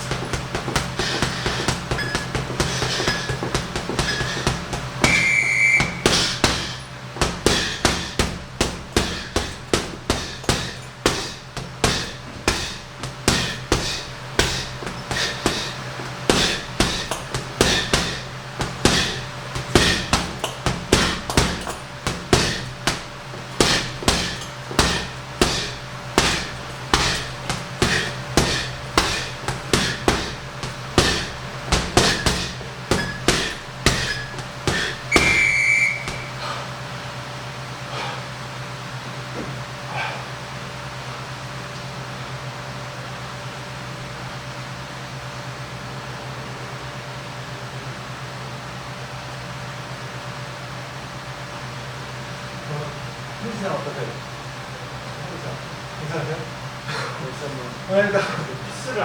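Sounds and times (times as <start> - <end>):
punches thudding on heavy bag: 0.0 - 36.8
steady low hum: 0.0 - 59.0.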